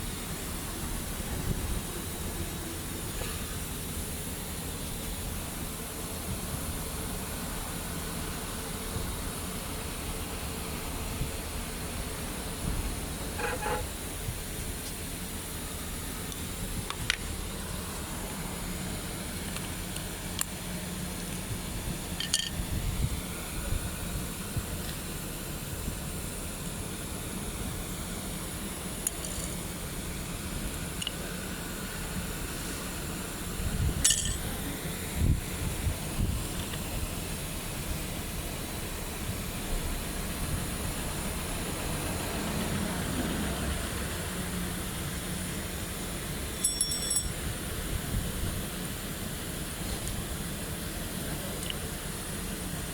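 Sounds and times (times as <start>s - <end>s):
steady low hum: 0.0s - 52.9s
tools and metal parts clinking: 22.2s - 22.6s, 34.0s - 34.5s, 46.6s - 47.4s.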